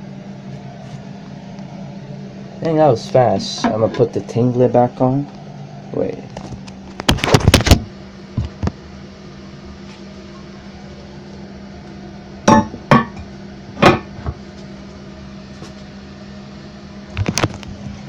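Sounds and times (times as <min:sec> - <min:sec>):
porcelain lid knocking on toilet tank: 0:12.5 - 0:13.2.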